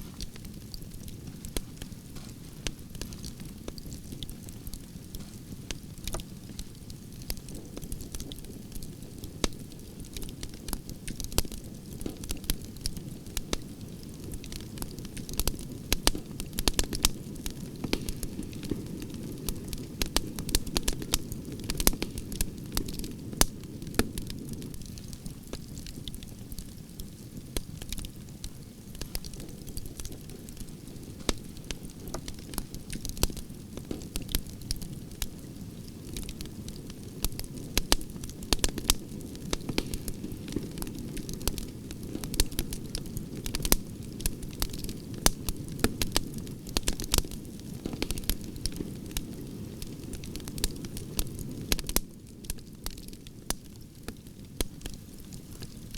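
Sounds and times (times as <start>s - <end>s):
low rush of flames: 0.0s - 8.4s
wood fire crackling: 0.0s - 55.9s
sharp pops and snaps: 28.9s - 34.8s.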